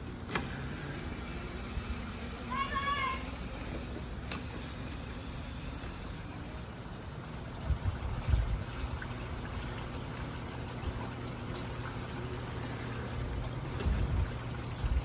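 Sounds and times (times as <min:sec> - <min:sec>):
wind buffeting microphone: 0:07.5 - 0:09.6, 0:13.4 - 0:15.0.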